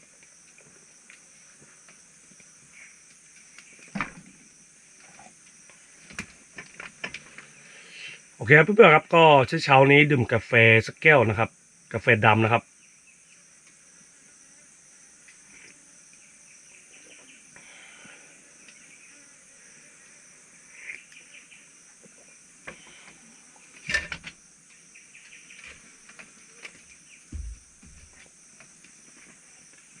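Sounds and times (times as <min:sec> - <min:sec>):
insects chirring: 0:00.0 - 0:30.0
faint bird chirps: 0:16.2 - 0:17.6.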